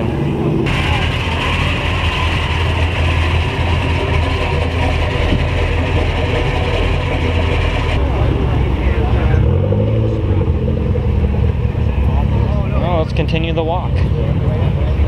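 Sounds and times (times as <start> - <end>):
car engine idling: 0.0 - 9.4.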